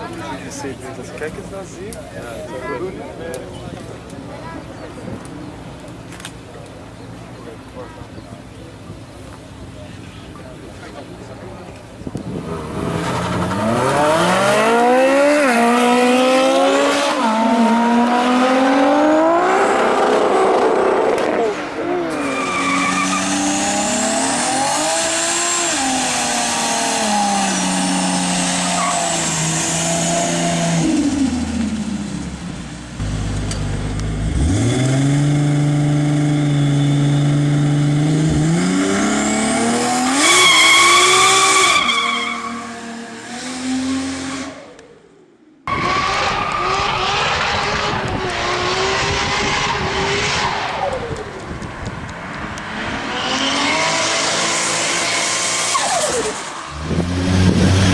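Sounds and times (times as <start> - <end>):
turbocharged car engine revving: 12.2 - 32.4, 33.0 - 44.8, 45.7 - 51.3, 52.5 - 57.9.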